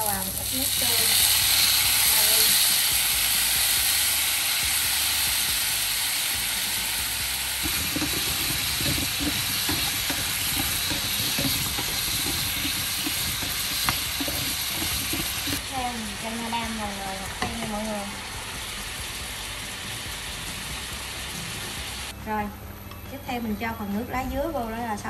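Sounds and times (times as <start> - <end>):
pumpkin sizzling in oil: 0.0 - 22.1
chopsticks knocking and scraping pan: 7.6 - 15.6.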